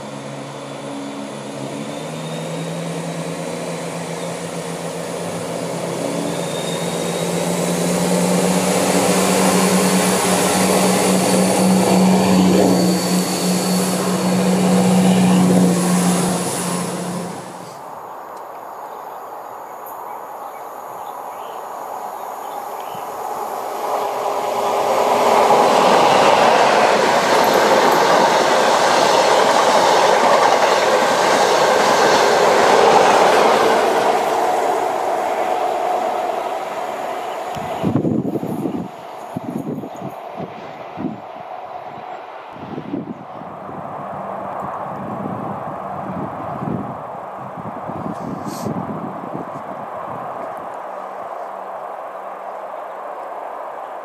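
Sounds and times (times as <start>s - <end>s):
train rushing past: 0.0s - 18.1s, 23.1s - 51.9s
diesel train engine hum: 0.0s - 18.5s, 21.7s - 54.0s
wheels clacking over rail joints: 24.0s - 35.5s.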